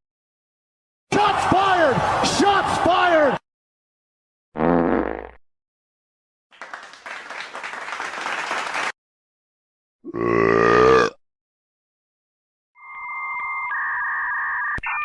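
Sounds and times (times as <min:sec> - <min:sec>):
crowd clapping: 0:06.5 - 0:09.0.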